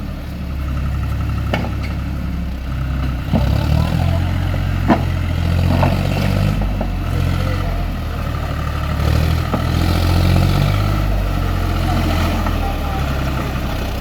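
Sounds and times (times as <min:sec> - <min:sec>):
tractor engine droning: 0:00.0 - 0:14.0.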